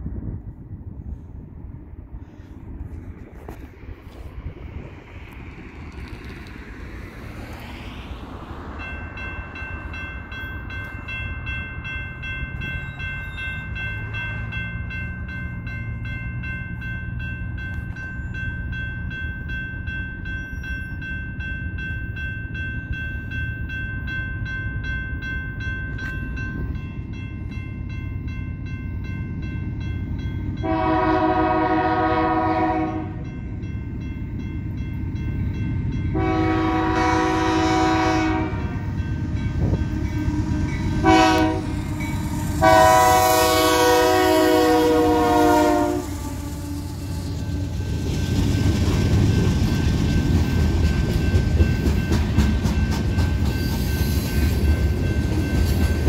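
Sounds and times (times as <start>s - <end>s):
diesel freight train rumble: 0.0s - 56.0s
crossing warning bell ringing: 5.2s - 56.0s
locomotive air horn chord: 30.6s - 33.2s, 36.1s - 38.9s, 39.9s - 47.5s.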